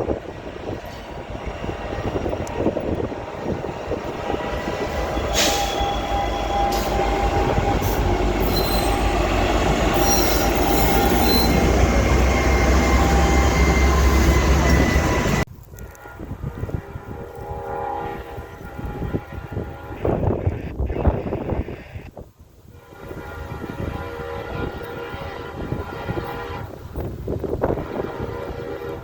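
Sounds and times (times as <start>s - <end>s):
train rumbling past: 0.0s - 20.8s, 22.8s - 29.0s
steel wheels squealing: 3.6s - 15.4s.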